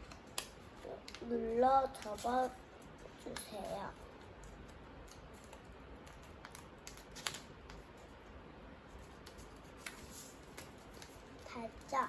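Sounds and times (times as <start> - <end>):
paper rustling and crackling: 4.3 - 8.2, 9.0 - 12.0.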